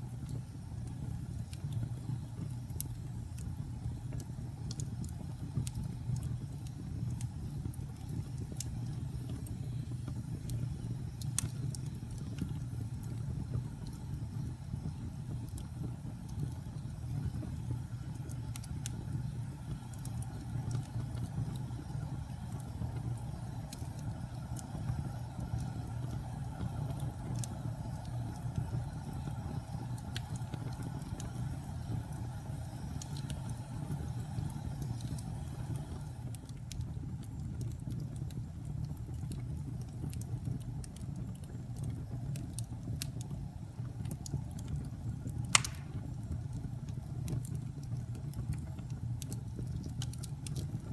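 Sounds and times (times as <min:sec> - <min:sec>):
fire crackling and popping: 0:00.0 - 0:50.9
fire roaring: 0:00.0 - 0:50.9.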